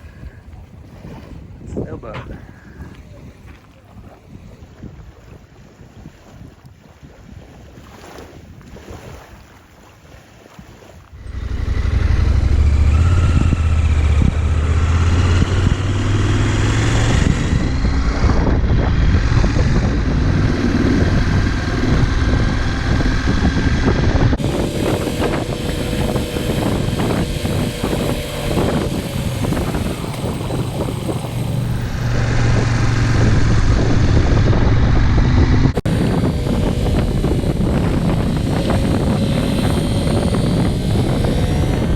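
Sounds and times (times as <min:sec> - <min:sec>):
motorcycle engine running: 0:11.1 - 0:41.9
road noise: 0:11.1 - 0:41.9.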